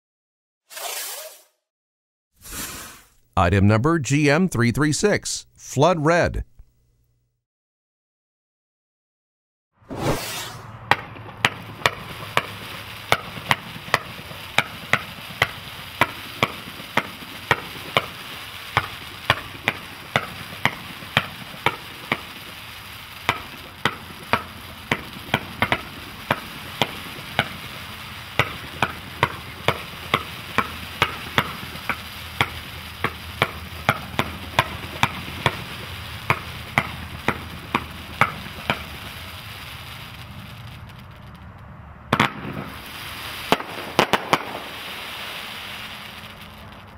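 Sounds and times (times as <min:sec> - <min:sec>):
fireworks shots firing: 0:09.9 - 0:41.4, 0:42.1 - 0:46.9
fireworks crackling: 0:09.9 - 0:46.9.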